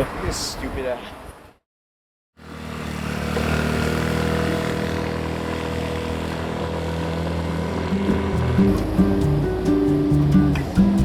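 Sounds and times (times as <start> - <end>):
vehicle engine droning: 2.4 - 11.0.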